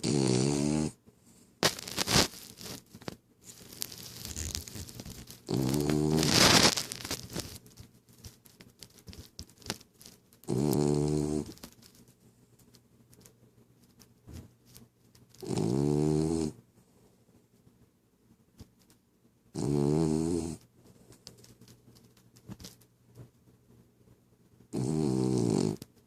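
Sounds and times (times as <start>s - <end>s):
dog snoring: 0.0s - 1.0s, 5.5s - 6.7s, 10.4s - 11.6s, 15.4s - 16.6s, 19.5s - 20.6s, 24.7s - 25.9s.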